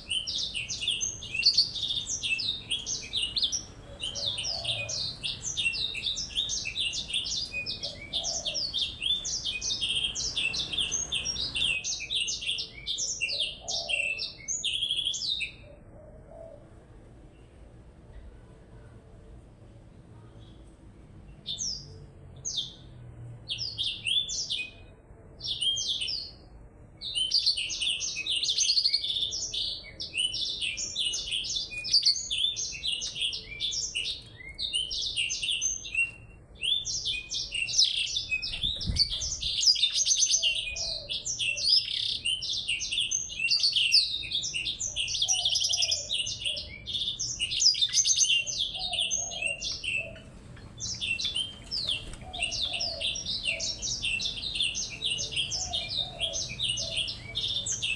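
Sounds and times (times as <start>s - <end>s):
songbirds chirping and trilling: 0.0s - 57.9s.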